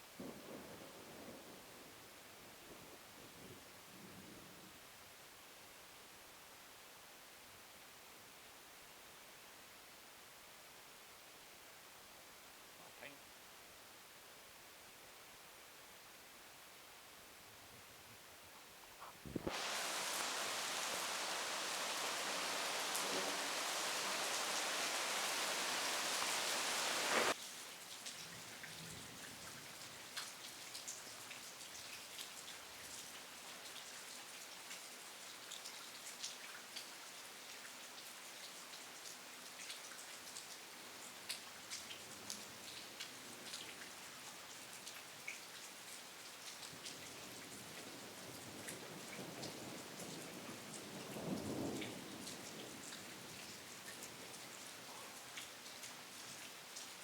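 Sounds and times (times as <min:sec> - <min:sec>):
light rain with drips: 0:00.0 - 0:57.0
heavy rain hissing: 0:19.2 - 0:27.4.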